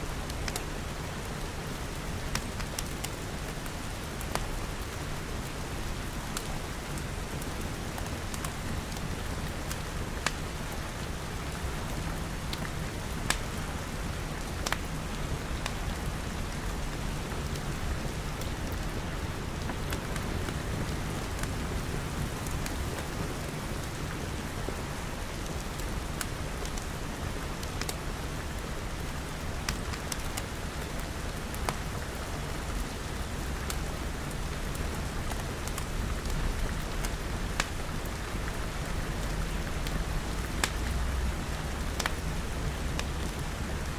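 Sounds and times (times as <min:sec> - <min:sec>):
steady rain: 0:00.0 - 0:43.9
crackling wood fire pops: 0:12.5 - 0:13.7, 0:14.6 - 0:14.9, 0:27.6 - 0:28.0, 0:34.8 - 0:38.2, 0:39.2 - 0:42.2.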